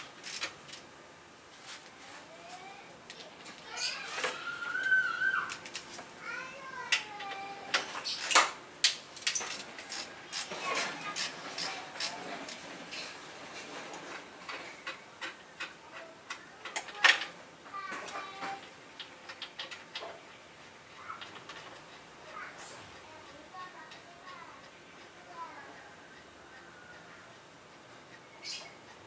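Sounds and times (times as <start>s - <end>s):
hand tools clicking and knocking: 6.9s - 12.6s.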